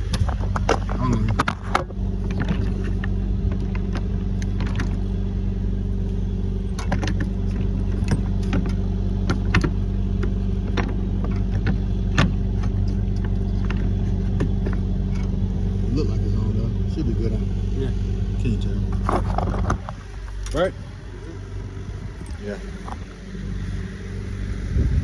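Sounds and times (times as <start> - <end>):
metal clicks and knocks: 0.0 - 5.1, 6.6 - 15.5
large engine humming: 0.0 - 25.0.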